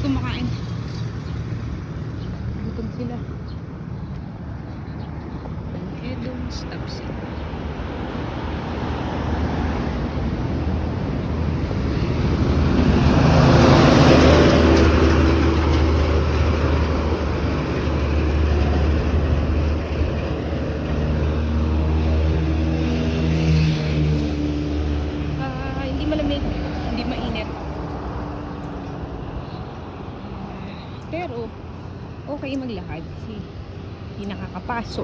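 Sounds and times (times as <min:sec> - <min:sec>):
low traffic hum: 0:00.0 - 0:35.0
vehicle passing close by: 0:00.0 - 0:35.0.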